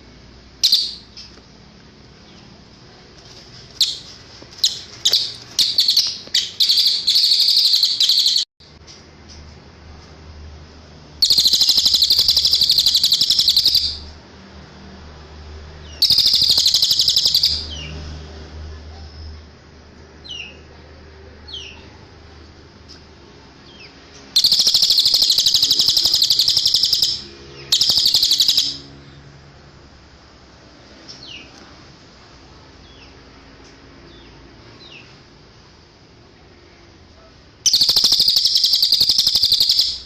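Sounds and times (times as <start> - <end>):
songbird high-pitched trills: 0.6 - 1.4, 3.8 - 8.5, 11.2 - 14.1, 15.9 - 17.8, 24.4 - 28.9, 37.7 - 40.0.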